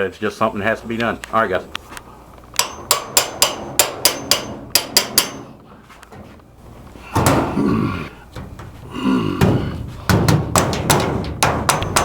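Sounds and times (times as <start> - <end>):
sharp knocks like hammer blows: 2.6 - 5.5, 9.4 - 12.0.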